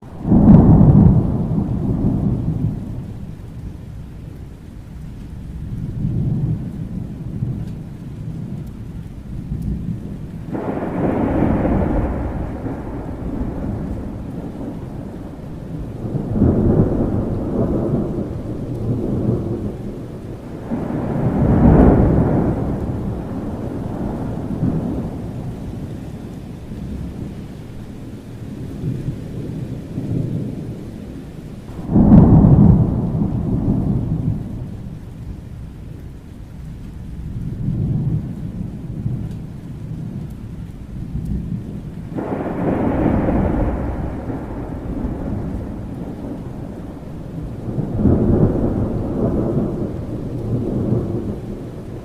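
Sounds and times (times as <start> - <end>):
thunder rolling: 0.0 - 4.4, 5.4 - 27.4, 28.5 - 36.0, 36.8 - 52.0
steady rain: 0.0 - 52.0
sharp thunder clap: 9.6 - 25.8, 31.7 - 35.0, 41.4 - 52.0.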